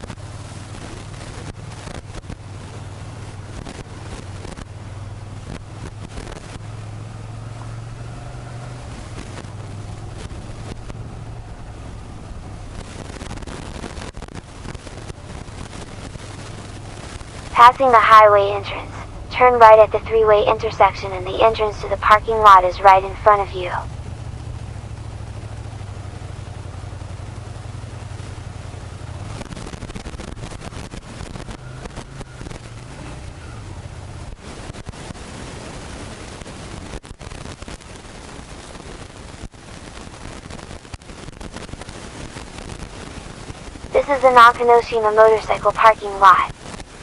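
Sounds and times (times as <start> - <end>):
motorcycle engine droning: 0.0 - 17.5, 23.9 - 37.0.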